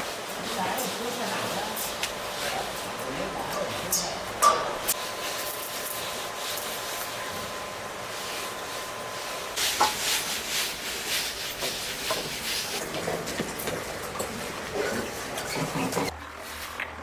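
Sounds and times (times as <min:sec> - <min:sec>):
rough scraping and rubbing: 0:08.1 - 0:13.3.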